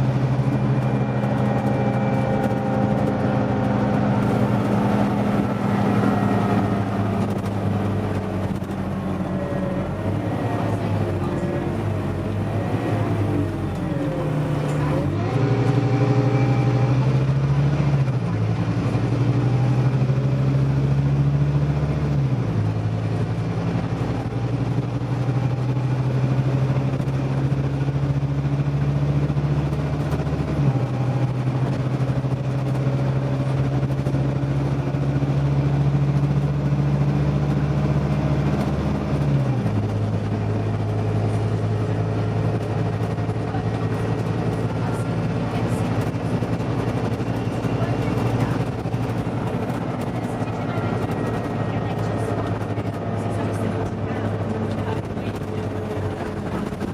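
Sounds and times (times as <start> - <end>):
bus engine pulling away: 0.0 - 56.9
gear changes: 0.3 - 17.3.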